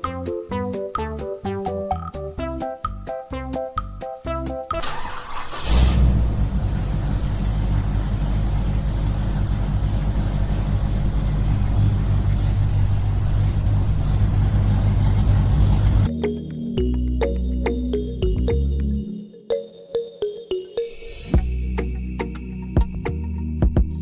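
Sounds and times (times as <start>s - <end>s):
small engine droning: 4.8s - 16.1s.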